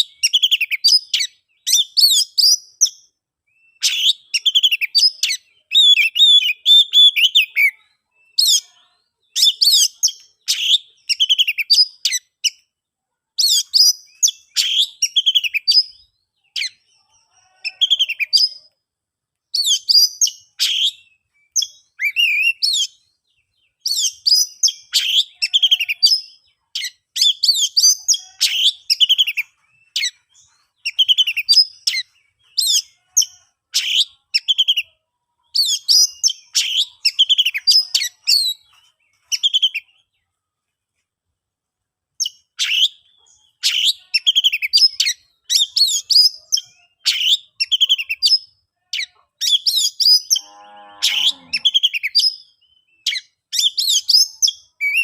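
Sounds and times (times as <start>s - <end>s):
bird singing whistles and chirps: 0.0s - 8.6s, 13.4s - 16.9s, 19.5s - 40.0s, 42.2s - 50.4s, 51.0s - 55.0s.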